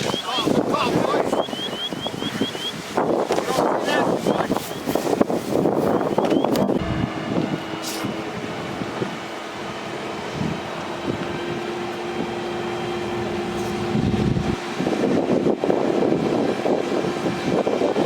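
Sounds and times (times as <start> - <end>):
rough rushing noise: 0.0 - 18.0
truck engine humming: 0.0 - 18.0.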